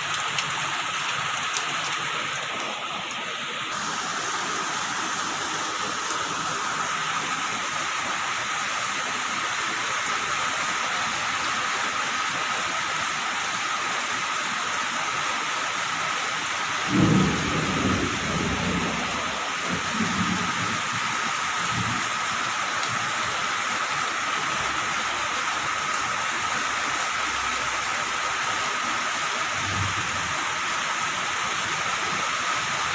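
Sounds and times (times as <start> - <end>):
heavy rain pouring: 0.0 - 32.9
thunder rumbling: 16.9 - 21.1.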